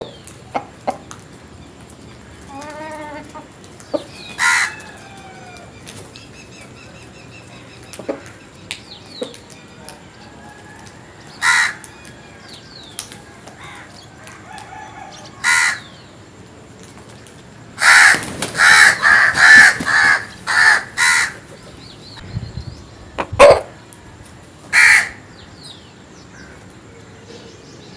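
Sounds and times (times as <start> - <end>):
loud harsh bird calls: 2.1 - 16.2, 17.8 - 22.2, 24.7 - 27.9.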